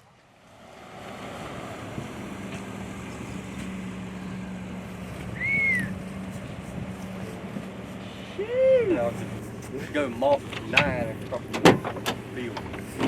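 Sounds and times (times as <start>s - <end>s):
vehicle engine running: 0.4s - 13.0s
short high rising and falling call: 5.3s - 6.0s.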